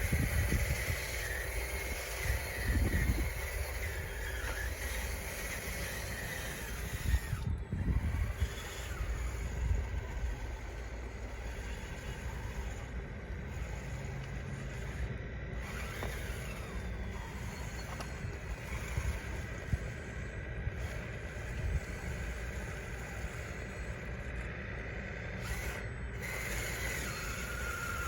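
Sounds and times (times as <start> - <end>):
wind on microphone: 0.0 - 4.7, 5.8 - 10.6
electric motor whine: 0.0 - 28.0.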